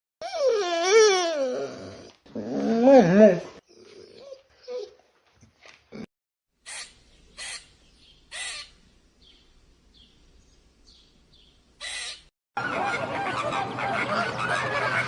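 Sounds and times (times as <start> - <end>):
bird calling: 6.6 - 15.0
flock of geese honking: 12.6 - 15.0.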